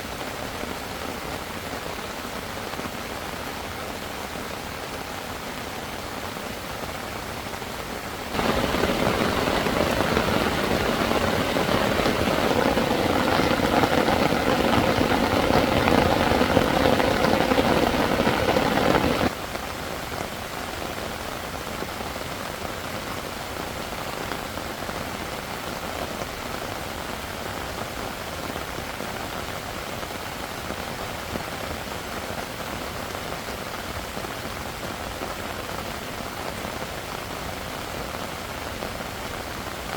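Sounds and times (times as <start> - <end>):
heavy rain hissing: 7.6 - 19.3.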